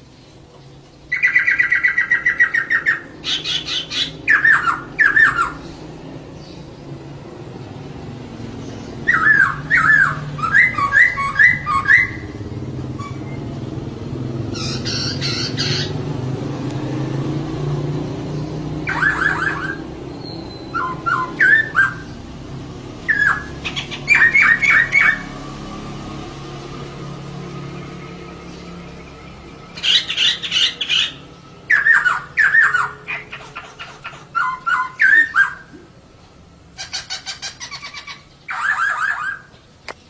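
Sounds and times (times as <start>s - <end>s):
harsh bird call: 1.1s - 5.8s, 8.8s - 13.6s, 14.5s - 16.1s, 18.3s - 22.2s, 23.0s - 25.4s, 27.8s - 35.9s, 36.8s - 39.6s.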